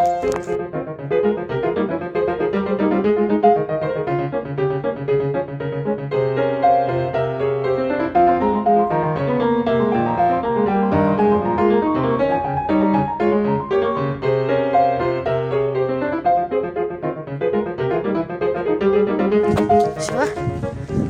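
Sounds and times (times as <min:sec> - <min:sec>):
piano music: 0:00.0 - 0:20.7.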